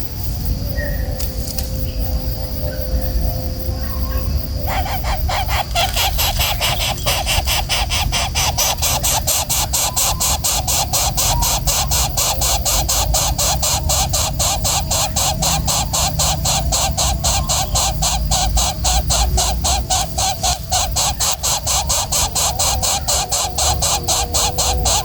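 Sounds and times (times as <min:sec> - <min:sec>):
bird chirring pulses: 0:00.0 - 0:25.0.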